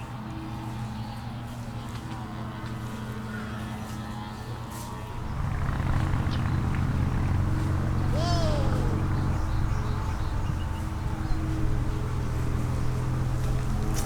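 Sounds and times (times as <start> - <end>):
vehicle engine passing by: 5.0 - 14.0.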